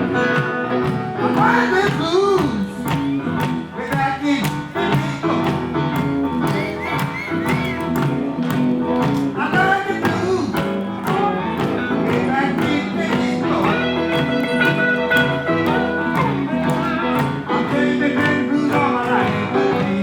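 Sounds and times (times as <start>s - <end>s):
blues band playing: 0.0s - 20.0s
guitar with bent sliding notes: 0.0s - 20.0s.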